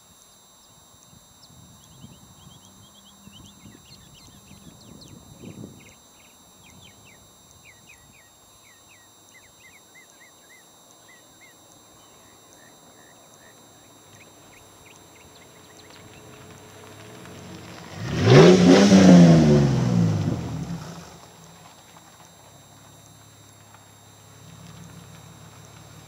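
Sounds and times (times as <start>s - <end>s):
small birds chirping: 0.6s - 16.5s.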